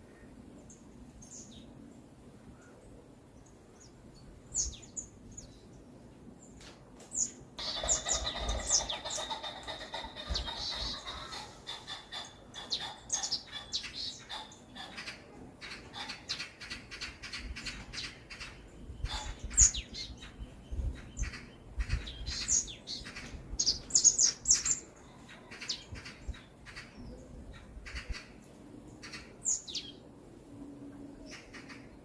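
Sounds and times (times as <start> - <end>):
small birds chirping: 7.2 - 28.2.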